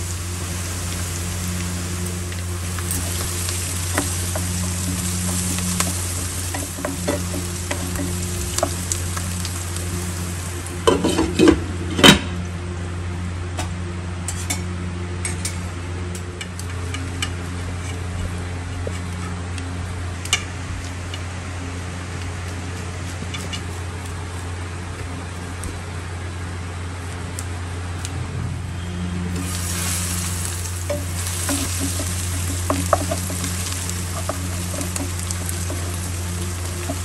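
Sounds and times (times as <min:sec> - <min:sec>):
onions sizzling in oil: 0:00.0 - 0:11.6, 0:29.2 - 0:37.0
low hum: 0:00.0 - 0:37.0
stirring clicks: 0:01.6 - 0:10.0, 0:29.4 - 0:37.0.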